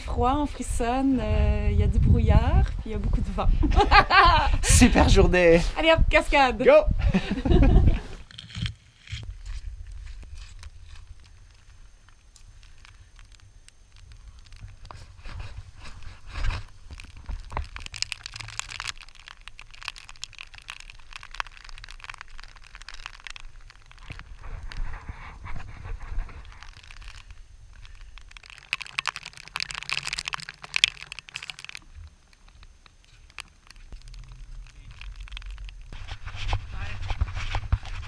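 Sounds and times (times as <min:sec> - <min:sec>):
wind buffeting microphone: 0:00.0 - 0:08.2
rain gear crunching and rustling: 0:07.6 - 0:38.0.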